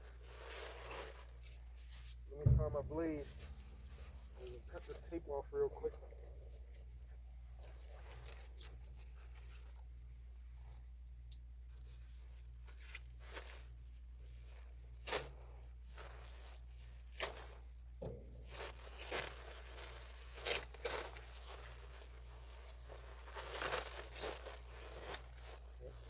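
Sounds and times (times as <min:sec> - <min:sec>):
plastic duct crinkling: 0:11.7 - 0:26.0.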